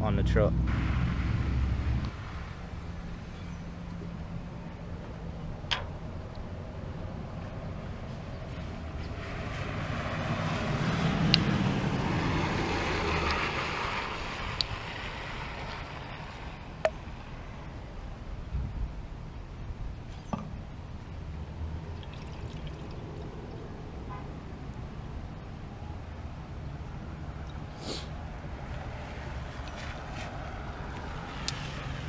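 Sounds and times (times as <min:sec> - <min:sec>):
low rumble: 0:00.0 - 0:07.8
liquid trickling pour: 0:21.9 - 0:23.6.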